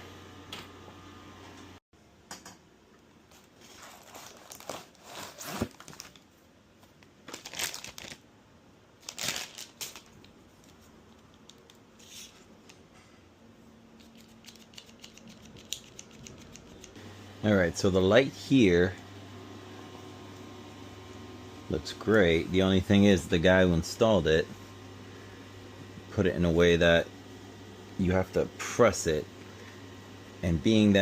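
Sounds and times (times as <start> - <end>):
crinkling and rustling handling: 3.3 - 8.2, 9.0 - 13.1.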